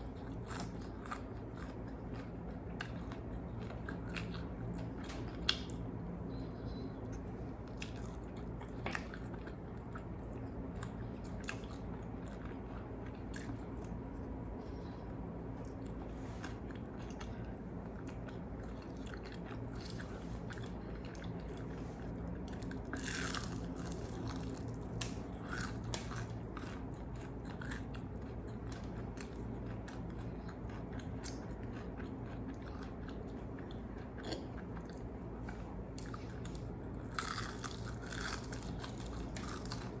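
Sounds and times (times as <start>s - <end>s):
chewing crispy chicken: 0.0s - 6.0s, 7.1s - 40.0s
steady low hum: 0.0s - 40.0s.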